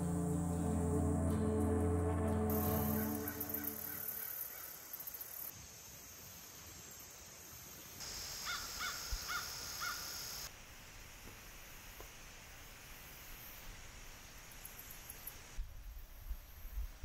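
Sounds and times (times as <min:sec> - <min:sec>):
faint outdoor background noise: 0:00.0 - 0:17.0
bird cawing: 0:08.4 - 0:10.1.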